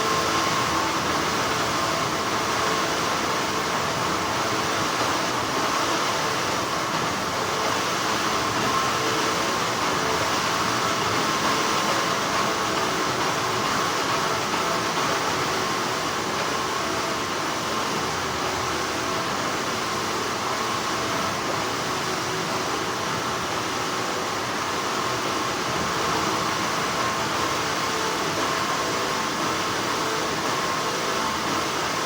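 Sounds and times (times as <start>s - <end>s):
factory machinery hum and whir: 0.0s - 32.0s.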